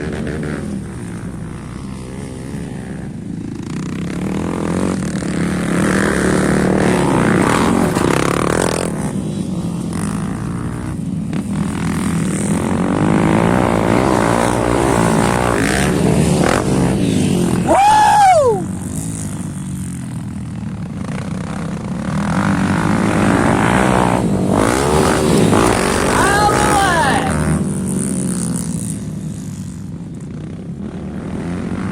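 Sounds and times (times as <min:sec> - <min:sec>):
dirt bike engines revving: 0:00.0 - 0:31.9.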